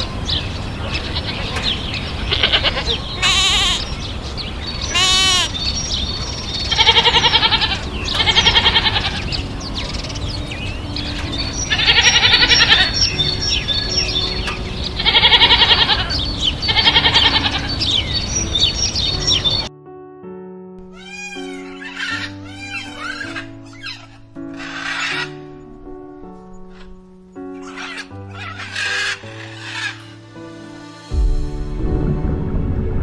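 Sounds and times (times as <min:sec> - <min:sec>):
quavering bleats: 0:02.2 - 0:04.1, 0:04.8 - 0:05.7, 0:06.7 - 0:09.3, 0:11.6 - 0:13.0, 0:15.0 - 0:18.0, 0:21.0 - 0:25.3.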